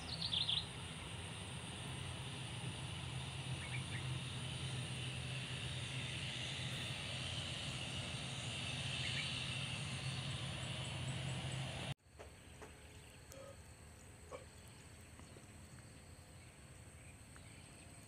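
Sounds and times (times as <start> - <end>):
faint bird chirps: 0.0 - 0.8, 12.4 - 18.0
distant jet engine hum: 0.0 - 18.0.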